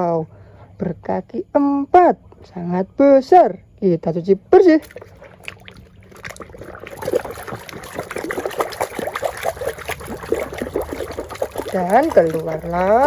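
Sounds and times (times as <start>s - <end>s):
water trickling and splashing: 4.6s - 13.0s.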